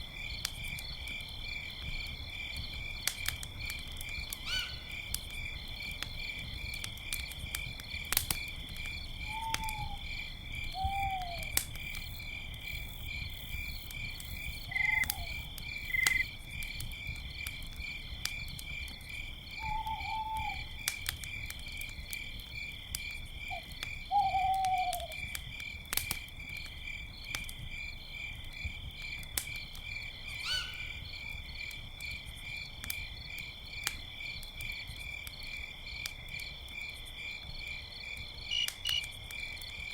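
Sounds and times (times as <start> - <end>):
campfire crackling and popping: 0.0 - 39.9
crickets trilling: 0.0 - 39.9
owl hooting: 10.8 - 11.5, 19.7 - 20.6, 24.1 - 25.1, 30.4 - 30.9.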